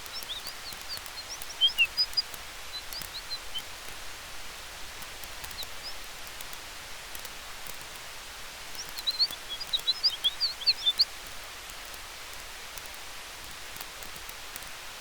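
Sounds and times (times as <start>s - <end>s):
small bird chirping: 0.0s - 4.1s, 4.8s - 7.9s, 8.6s - 12.0s
faint campfire crackles: 0.0s - 15.0s
steady wind hiss: 0.0s - 15.0s.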